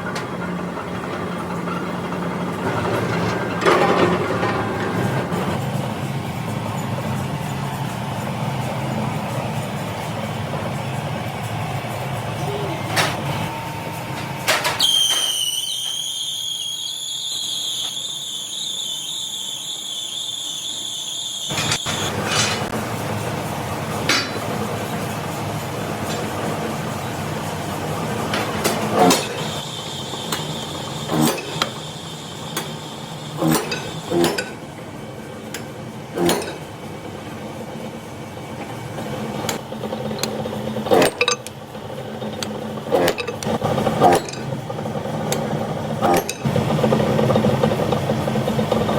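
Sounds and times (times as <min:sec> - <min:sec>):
machinery hum: 0:00.0 - 0:48.9
high-pitched metal squeal: 0:14.7 - 0:22.7.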